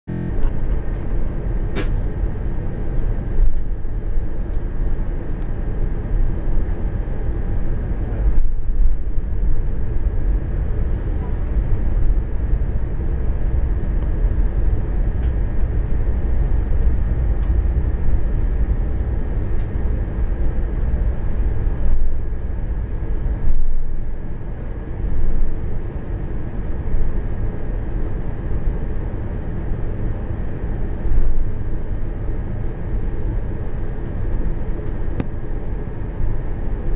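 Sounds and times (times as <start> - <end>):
faint steady whine: 0.1 - 36.9
jet engines idling rumble: 0.1 - 36.9.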